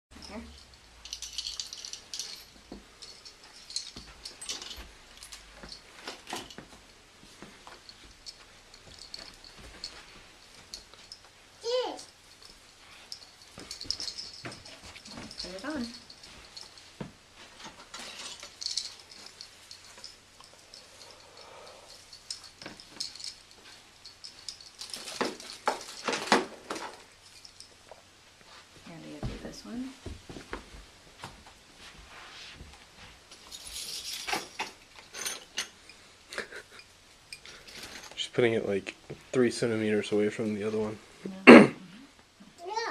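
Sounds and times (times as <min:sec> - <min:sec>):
ornaments clinking and jingling: 0:00.1 - 0:28.6, 0:33.3 - 0:38.8.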